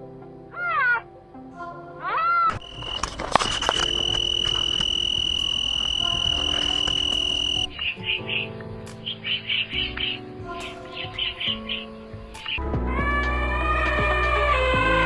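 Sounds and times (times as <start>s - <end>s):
high insect trill: 2.5s - 10.0s.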